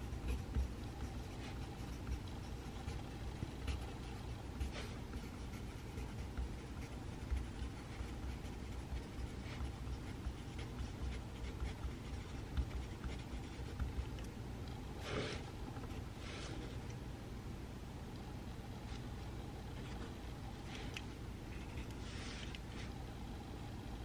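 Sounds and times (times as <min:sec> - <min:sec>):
pencil writing on paper: 0:00.0 - 0:14.3
low room hum: 0:00.0 - 0:24.0.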